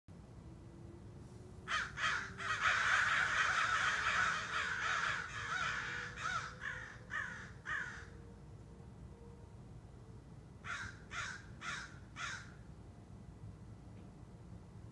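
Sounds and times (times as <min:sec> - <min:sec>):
birds calling harshly: 0:01.7 - 0:08.1, 0:10.7 - 0:12.5.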